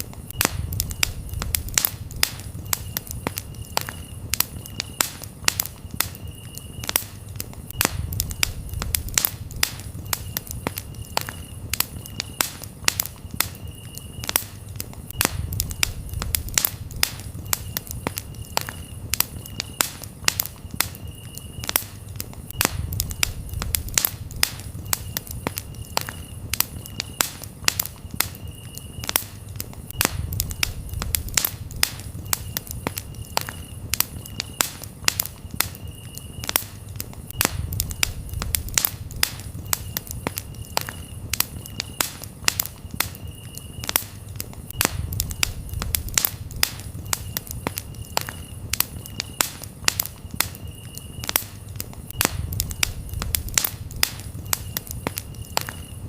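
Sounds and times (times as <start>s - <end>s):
campfire crackling: 0.0s - 56.0s
cricket chirping: 0.0s - 56.0s.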